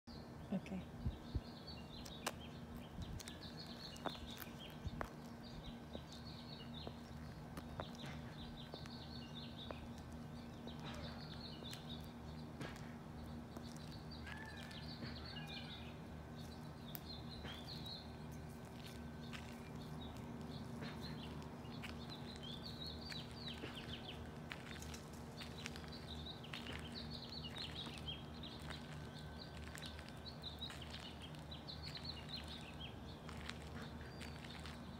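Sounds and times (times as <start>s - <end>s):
small birds chirping: 0.1s - 34.9s
steady low hum: 0.1s - 34.9s.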